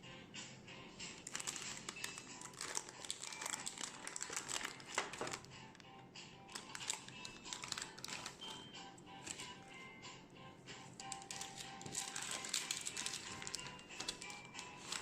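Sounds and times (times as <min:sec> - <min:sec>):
soft background music: 0:00.0 - 0:15.0
crinkly material rustling: 0:01.2 - 0:05.5, 0:06.5 - 0:08.6, 0:09.2 - 0:09.6, 0:11.0 - 0:15.0.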